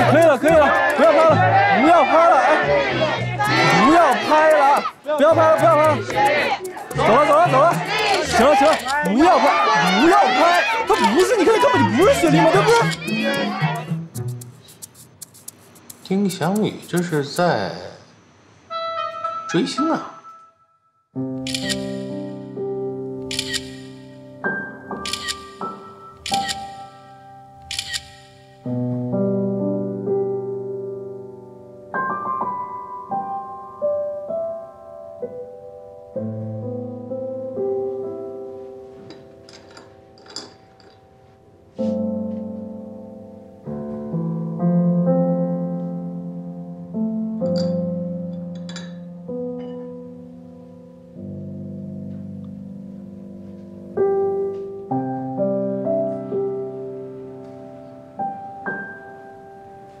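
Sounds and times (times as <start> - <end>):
slow solo piano music: 28.6 - 40.3, 41.8 - 60.0.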